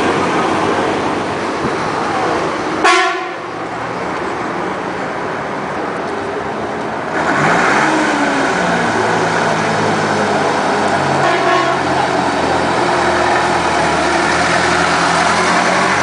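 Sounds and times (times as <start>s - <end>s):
truck engine revving up: 7.0s - 16.0s.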